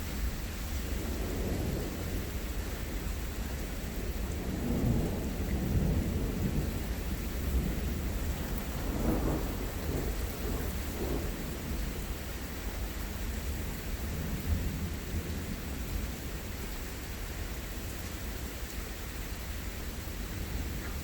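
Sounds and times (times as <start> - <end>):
steady rain: 0.0 - 21.0
thunder rumbling: 0.2 - 12.7.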